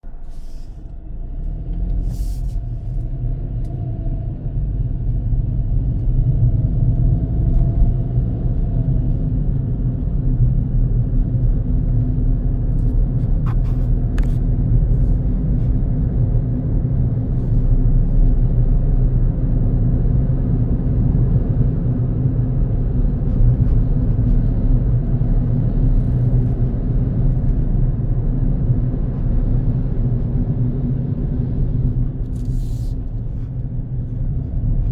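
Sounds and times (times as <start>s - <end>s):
car driving on road: 0.0s - 34.9s.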